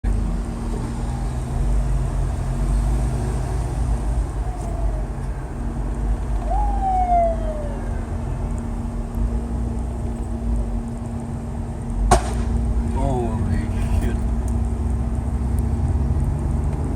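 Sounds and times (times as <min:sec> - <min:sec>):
street traffic rumble: 0:00.0 - 0:16.9
emergency vehicle siren wailing: 0:00.4 - 0:08.6.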